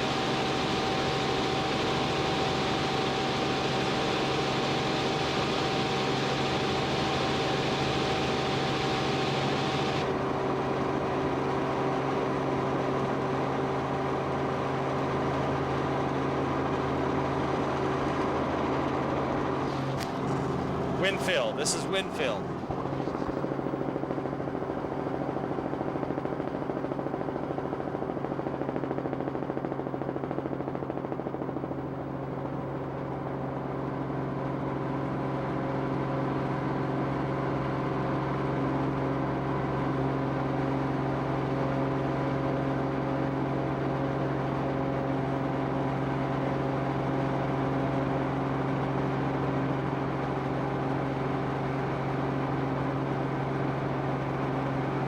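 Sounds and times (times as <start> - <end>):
aircraft engine drone: 0.0 - 28.0.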